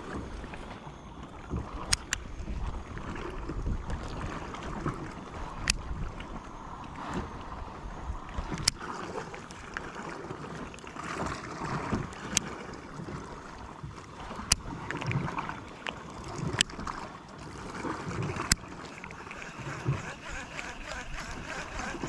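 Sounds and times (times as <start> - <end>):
water lapping against a hull: 0.0 - 22.0
wind on microphone: 1.4 - 9.2, 19.4 - 22.0.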